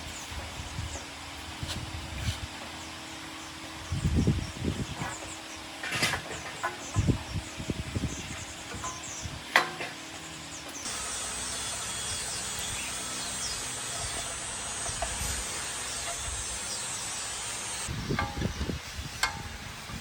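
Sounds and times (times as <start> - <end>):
insects buzzing: 0.0 - 17.9
birds chirping: 2.6 - 19.4
high insect drone: 10.8 - 17.9.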